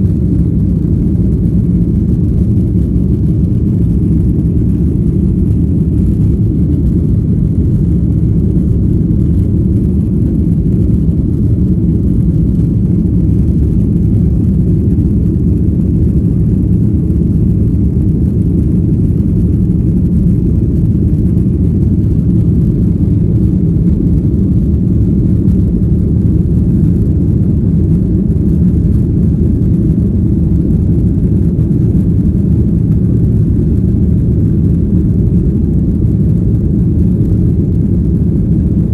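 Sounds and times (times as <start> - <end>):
jet engine cabin rumble: 0.0 - 38.9.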